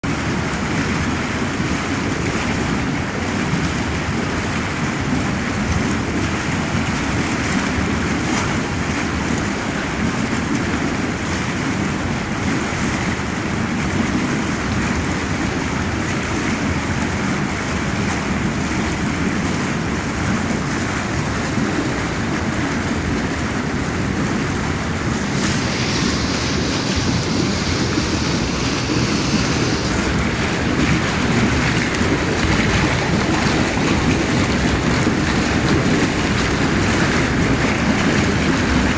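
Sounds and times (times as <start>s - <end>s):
hot tub jets churning water: 0.0s - 38.9s
higher hiss: 24.4s - 34.3s.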